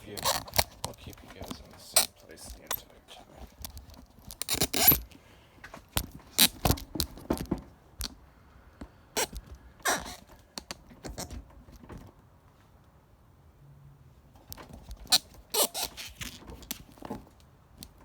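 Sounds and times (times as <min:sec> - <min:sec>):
phone handling scrapes and knocks: 0:00.0 - 0:07.6.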